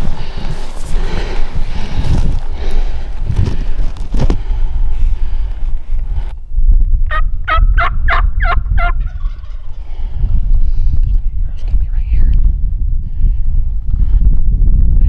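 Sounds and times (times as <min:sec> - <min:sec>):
wind rumble on microphone: 0:00.0 - 0:15.0
turkey calling: 0:07.1 - 0:09.8.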